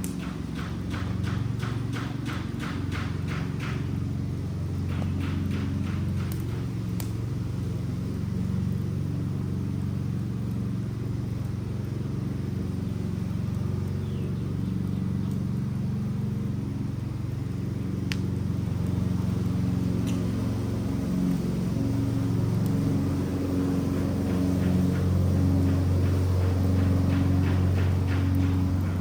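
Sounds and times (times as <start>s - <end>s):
fire popping: 0.0s - 7.8s, 17.4s - 29.0s
fire low rumble: 0.0s - 29.0s.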